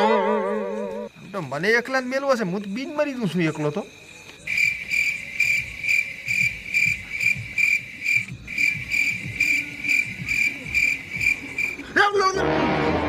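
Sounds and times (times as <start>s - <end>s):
cricket chirping: 0.0s - 12.4s.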